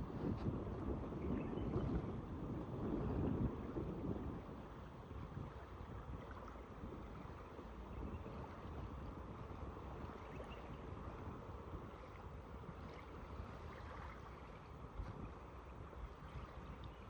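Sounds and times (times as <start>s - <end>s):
wind buffeting the microphone: 0.0s - 17.0s
calm waves washing: 8.4s - 17.0s.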